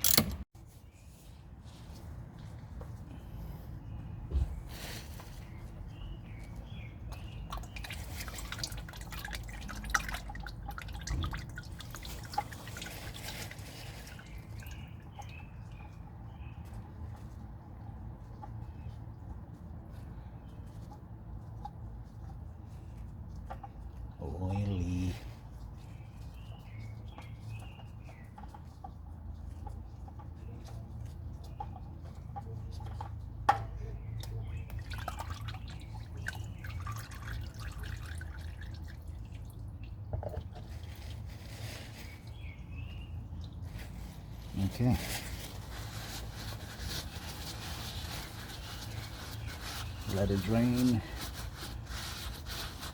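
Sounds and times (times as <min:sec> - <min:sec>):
bird chirping: 0:41.9 - 0:46.2.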